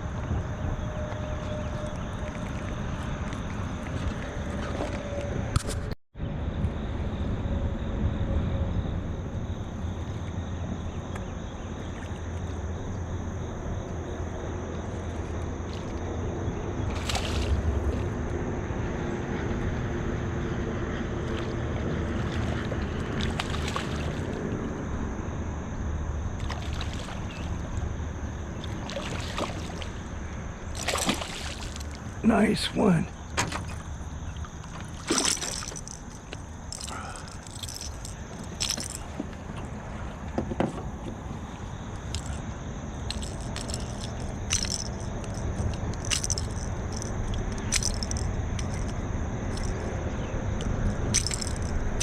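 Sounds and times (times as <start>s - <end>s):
river water flowing: 16.9s - 18.2s, 21.3s - 24.6s, 26.4s - 52.0s.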